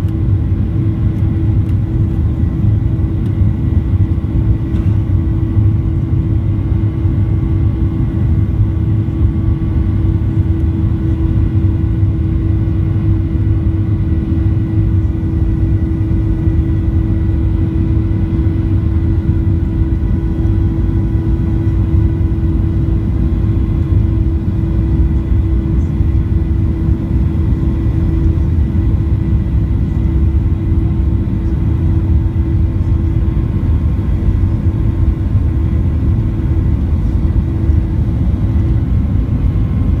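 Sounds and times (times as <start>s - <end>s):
jet engines rumbling: 0.0s - 40.0s.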